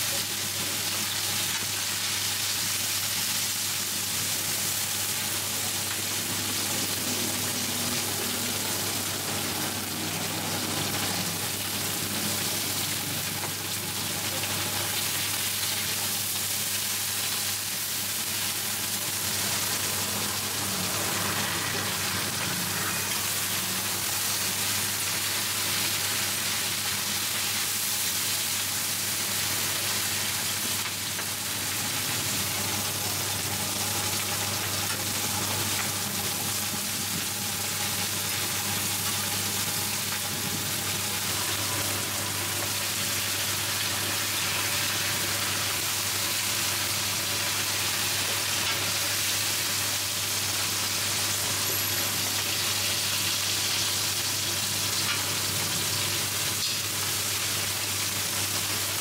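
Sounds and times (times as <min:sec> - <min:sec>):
batter sizzling on a griddle: 0:00.0 - 0:59.0.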